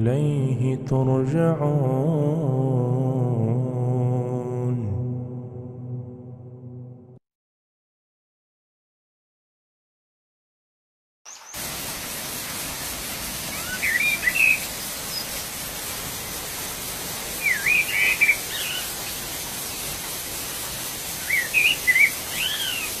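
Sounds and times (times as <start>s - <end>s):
waterfall rushing: 11.6s - 23.0s
songbird singing: 13.4s - 19.9s, 21.1s - 23.0s.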